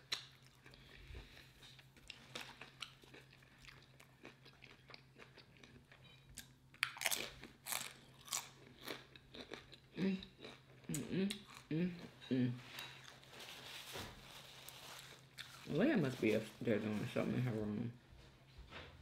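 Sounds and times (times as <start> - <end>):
chewing with mouth clicks: 0.0 - 12.1
tortilla chip crunching: 6.4 - 11.6.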